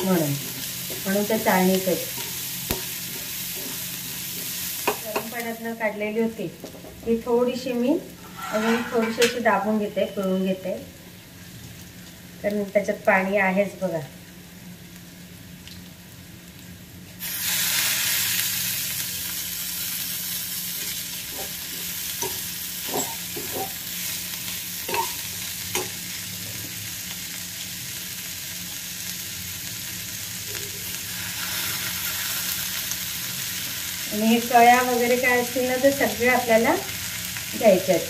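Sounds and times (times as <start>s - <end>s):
loud sizzle in hot pan: 0.0s - 38.0s
steel spoon scraping pan: 8.2s - 9.4s, 22.2s - 23.8s, 24.9s - 25.2s.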